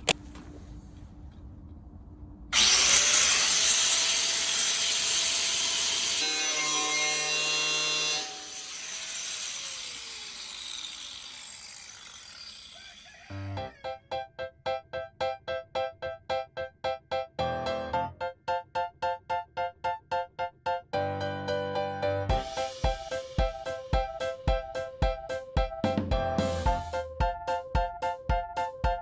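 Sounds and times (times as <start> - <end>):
power saw cutting: 2.5 - 13.8
saw blade winding down: 2.5 - 13.8.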